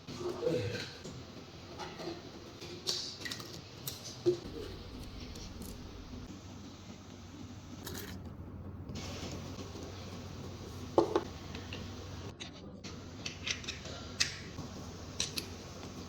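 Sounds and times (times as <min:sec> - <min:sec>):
faint low hum: 0:04.4 - 0:13.2
small objects clicking and tapping: 0:15.2 - 0:15.6.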